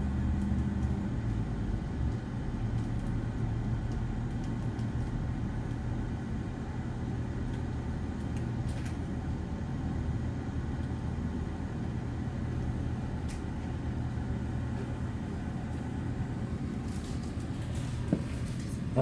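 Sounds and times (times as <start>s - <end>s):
low engine rumble: 10.3s - 19.0s.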